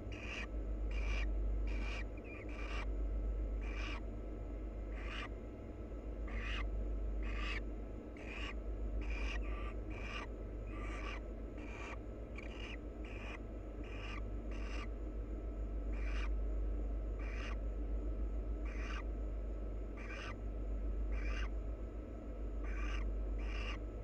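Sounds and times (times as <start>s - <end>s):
low electrical hum: 0.0s - 24.0s
barn owls hissing calls: 0.1s - 2.9s, 3.6s - 4.1s, 4.9s - 5.3s, 6.2s - 15.0s, 15.9s - 16.4s, 17.1s - 17.6s, 18.6s - 19.1s, 19.9s - 20.4s, 21.1s - 21.6s, 22.6s - 23.9s.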